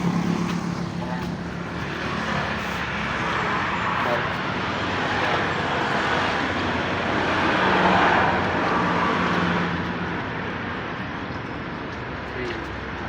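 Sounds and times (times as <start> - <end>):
vehicle passing by: 0.0 - 10.4.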